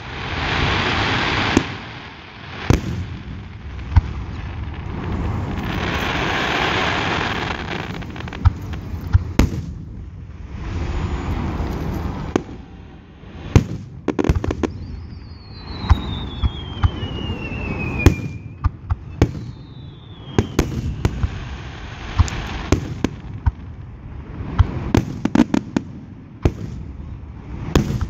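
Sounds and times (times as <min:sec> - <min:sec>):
firework bangs: 0:00.0 - 0:28.0
low rumble: 0:04.1 - 0:06.6, 0:07.4 - 0:14.1
falling firework whistle: 0:04.3 - 0:23.2.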